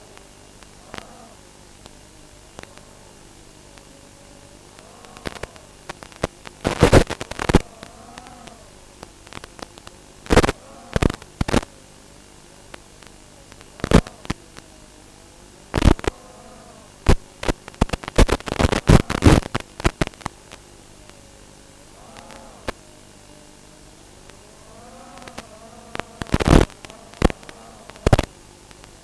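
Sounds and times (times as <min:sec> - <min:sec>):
sharp crackling bursts: 0:00.0 - 0:29.0
drone motors whining: 0:00.6 - 0:11.6, 0:21.8 - 0:28.8.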